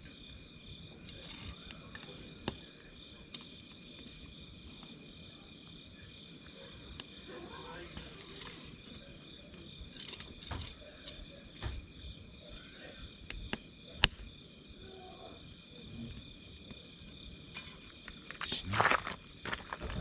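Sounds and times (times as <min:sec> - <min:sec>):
wood fire crackling and popping: 0:00.0 - 0:14.6, 0:16.1 - 0:20.0
crickets trilling: 0:00.0 - 0:20.0.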